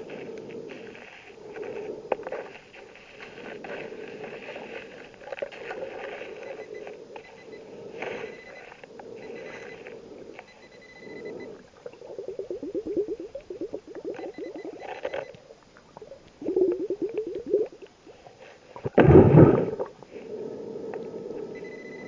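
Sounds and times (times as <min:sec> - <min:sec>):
regulator hissing inhalations: 0:00.0 - 0:15.3
bubbles gurgling underwater: 0:11.4 - 0:17.8, 0:18.8 - 0:20.0.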